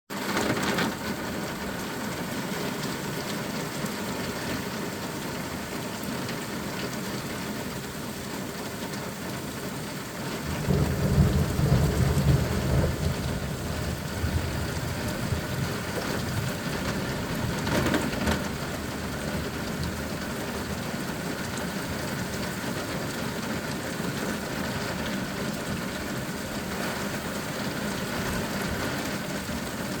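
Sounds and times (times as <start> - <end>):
steady rain: 0.1 - 30.0
thunder rolling: 10.4 - 20.8.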